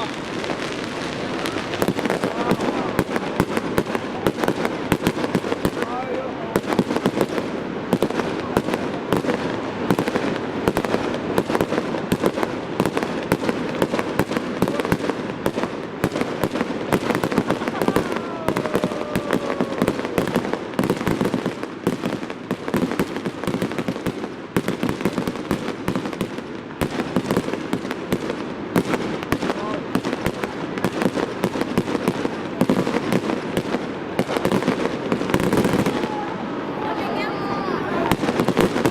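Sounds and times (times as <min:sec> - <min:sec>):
fireworks bangs and crackling: 0:00.0 - 0:38.9
falling firework whistle: 0:17.2 - 0:21.2.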